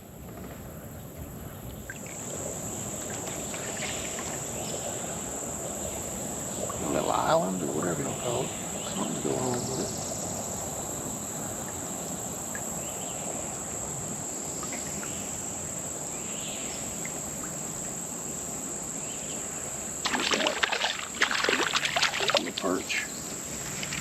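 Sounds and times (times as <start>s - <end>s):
insect chorus: 0.0s - 24.0s
faint chirps: 3.1s - 10.5s.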